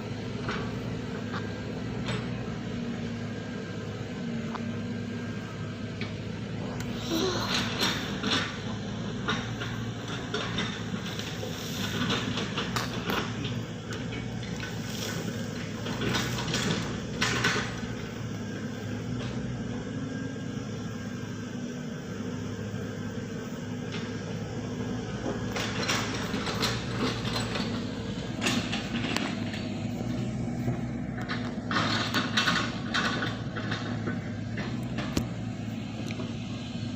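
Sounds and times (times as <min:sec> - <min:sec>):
machine engine running: 0:00.0 - 0:36.9
knocks and clatter: 0:07.5 - 0:18.2, 0:25.2 - 0:35.5.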